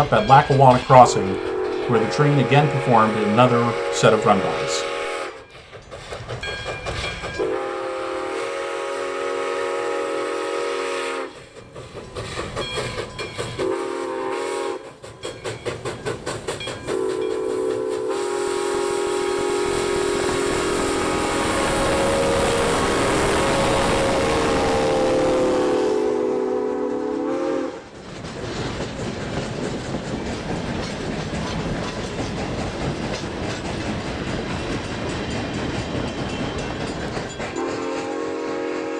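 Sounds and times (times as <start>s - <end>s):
steam locomotive whistle: 0.0s - 5.5s, 7.4s - 11.5s, 13.6s - 15.0s, 16.8s - 27.9s, 37.6s - 38.9s
locomotive exhaust chuffing: 0.0s - 27.2s.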